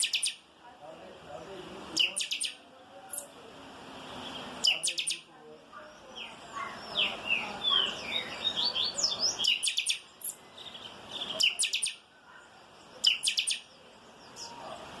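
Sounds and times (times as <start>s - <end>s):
bird song with sliding whistles: 0.0s - 0.4s, 2.0s - 2.6s, 4.6s - 5.2s, 8.1s - 10.4s, 11.4s - 12.0s, 13.0s - 13.6s.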